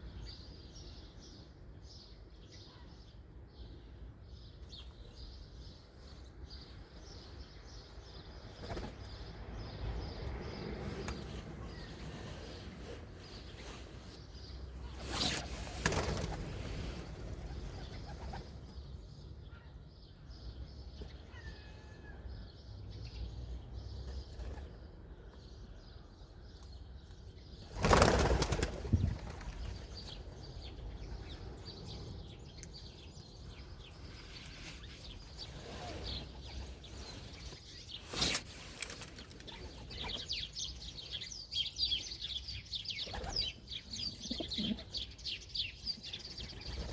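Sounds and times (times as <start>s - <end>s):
low city rumble: 0.0s - 46.9s
pigeon wings flapping: 27.8s - 29.8s.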